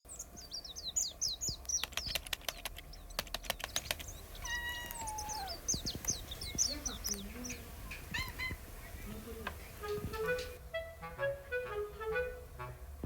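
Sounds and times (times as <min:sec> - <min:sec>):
high falling chirps: 0:00.1 - 0:12.7
sharp clicks: 0:01.4 - 0:07.2
cat meowing: 0:04.4 - 0:05.8, 0:08.1 - 0:08.6.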